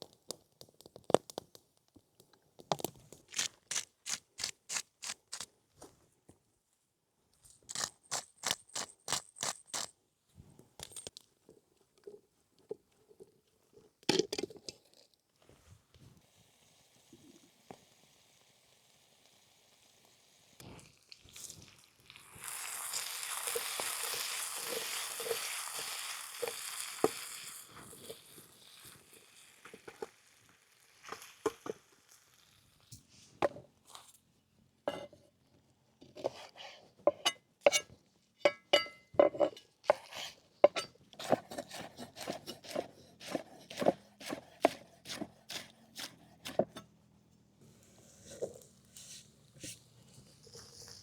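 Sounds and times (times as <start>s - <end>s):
food sizzling in a pan: 16.2s - 32.9s
knife chopping on cutting board: 40.7s - 46.8s.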